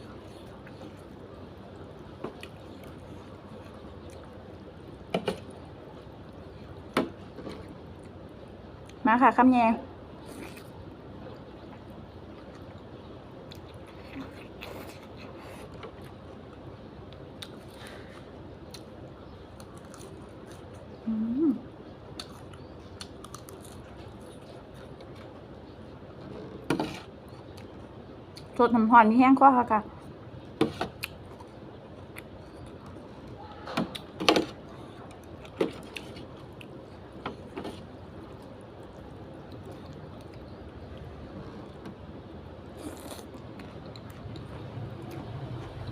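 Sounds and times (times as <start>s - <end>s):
person chewing: 0.0s - 8.2s, 10.2s - 10.9s, 11.6s - 21.3s, 22.1s - 25.5s, 30.8s - 41.8s, 42.5s - 45.8s
mouth eating sounds: 42.7s - 44.5s.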